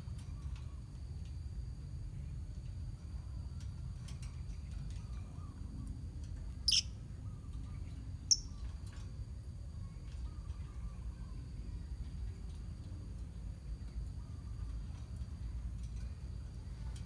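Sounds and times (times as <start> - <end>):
faint bird chirps and clicks: 0.1 - 1.4, 2.3 - 9.2, 9.8 - 11.4
shrill bird calls: 6.7 - 6.9.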